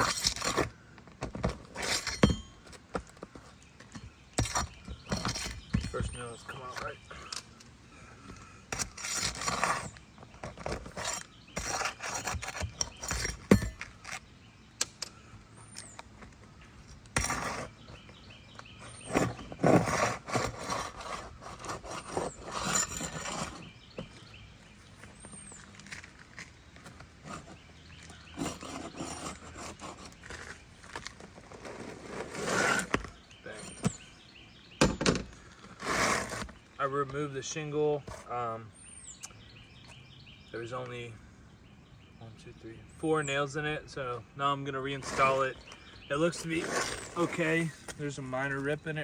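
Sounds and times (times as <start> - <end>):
shingle scraping and rubbing: 0.0 - 40.0, 44.6 - 49.0.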